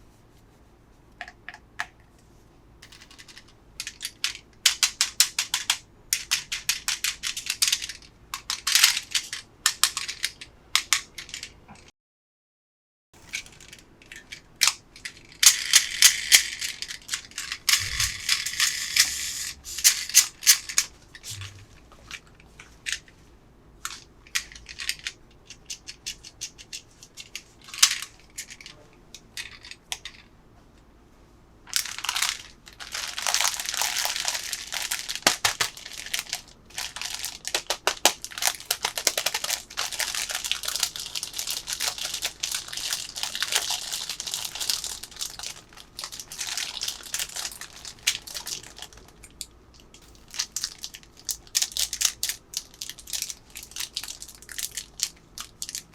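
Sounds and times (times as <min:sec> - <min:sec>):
packaging crinkling: 0:31.8 - 0:49.2, 0:50.0 - 0:55.9.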